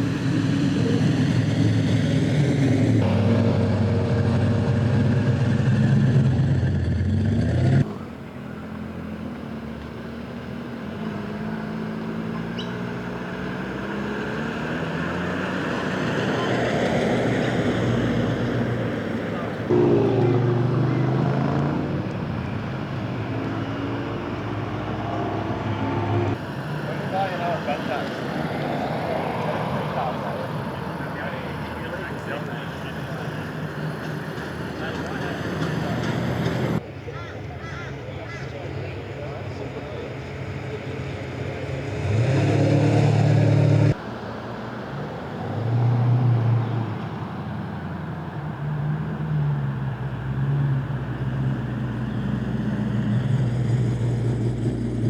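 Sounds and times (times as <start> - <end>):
car engine at low revs: 0.0 - 15.8
car engines running at low speed: 0.0 - 37.0, 38.6 - 55.0.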